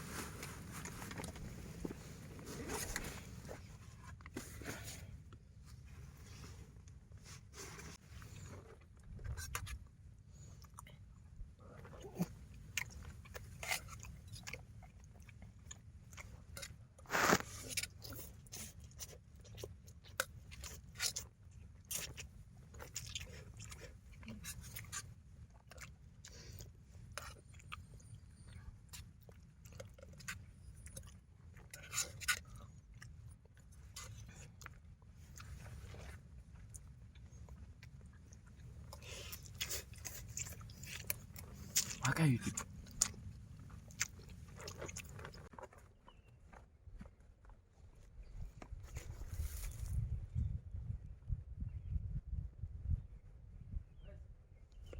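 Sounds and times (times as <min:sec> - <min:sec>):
low steady rumble: 0:00.0 - 0:16.6
crunching and chewing: 0:00.0 - 0:50.2.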